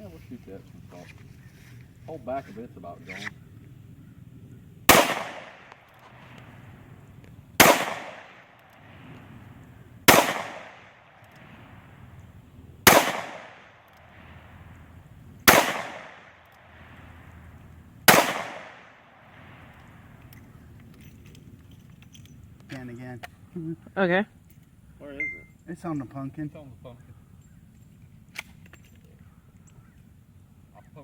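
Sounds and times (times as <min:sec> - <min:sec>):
gunshots with rolling echo: 0:04.9 - 0:06.9, 0:07.6 - 0:12.1, 0:12.8 - 0:20.2.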